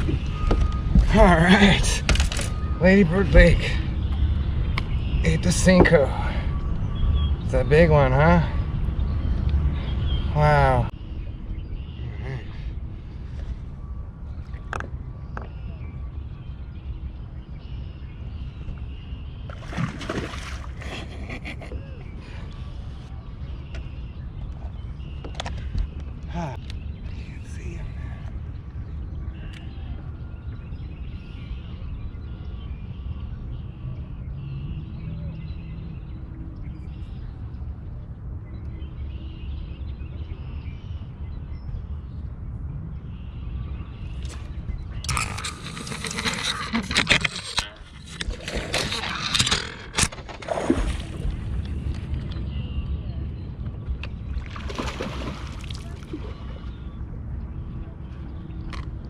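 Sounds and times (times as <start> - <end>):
birds calling: 0.0 - 59.0
distant highway traffic rumble: 0.0 - 59.0
water splashing beside boat: 19.5 - 21.4, 50.1 - 52.4, 54.0 - 56.9.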